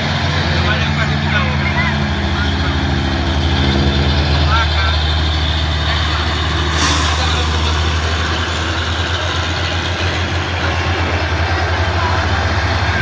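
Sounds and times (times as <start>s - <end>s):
diesel truck engine droning: 0.0s - 13.0s
short hiss: 6.7s - 8.6s.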